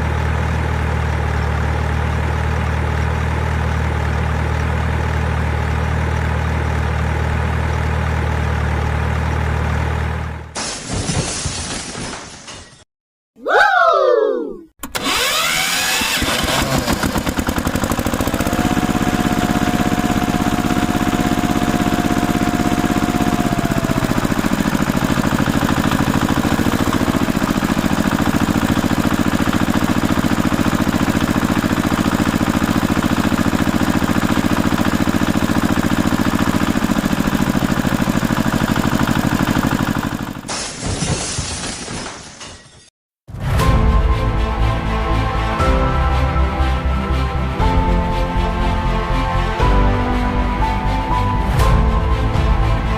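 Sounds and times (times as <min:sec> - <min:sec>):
vehicle engine chugging: 0:00.0 - 0:10.5, 0:15.0 - 0:40.5.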